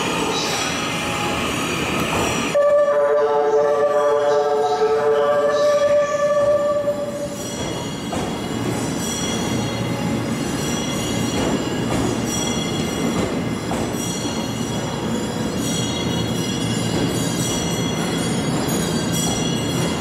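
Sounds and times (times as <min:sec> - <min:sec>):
moving train rumble: 0:00.0 - 0:20.0
train horn tone: 0:02.6 - 0:07.4.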